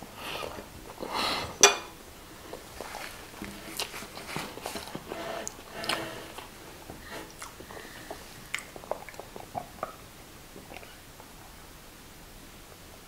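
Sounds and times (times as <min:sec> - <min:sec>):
close chewing and wet mouth noises: 0:00.2 - 0:01.2, 0:02.2 - 0:11.6.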